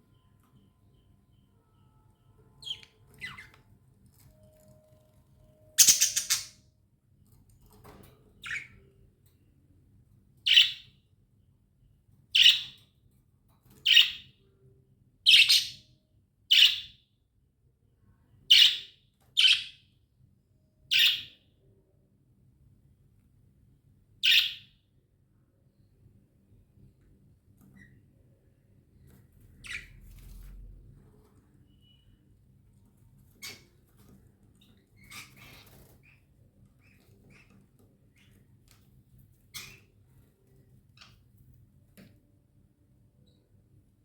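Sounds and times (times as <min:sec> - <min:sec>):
budgerigar chirps: 0:05.8 - 0:06.6, 0:16.5 - 0:17.0, 0:20.9 - 0:21.4, 0:24.2 - 0:24.7.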